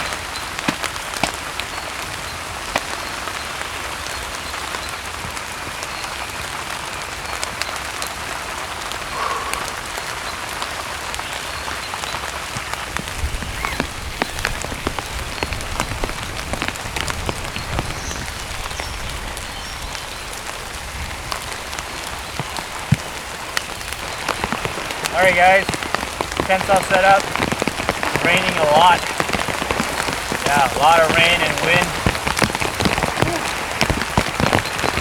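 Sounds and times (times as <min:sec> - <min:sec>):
heavy rain falling: 0:00.0 - 0:35.0
raindrops ticking sharply: 0:12.5 - 0:35.0.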